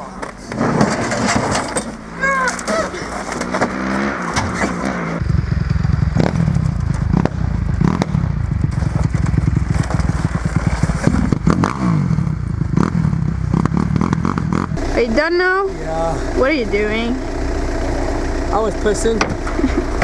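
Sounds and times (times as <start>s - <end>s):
dirt bike engine running: 1.9s - 20.0s.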